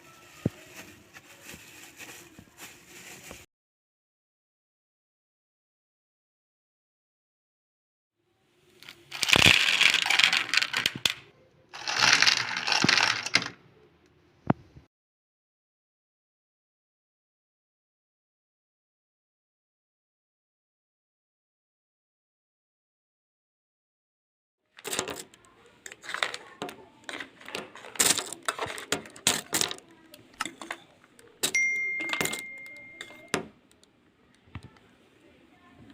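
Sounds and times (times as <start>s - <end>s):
hard candy crunching: 8.8s - 11.2s, 11.8s - 13.4s, 24.8s - 31.6s
sharp clicks and clinks: 24.8s - 33.9s
bright ringing ding: 31.5s - 33.3s.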